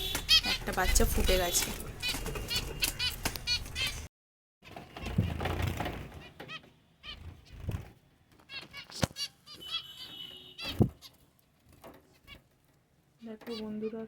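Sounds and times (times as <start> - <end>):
finches chirping: 0.0 - 4.1.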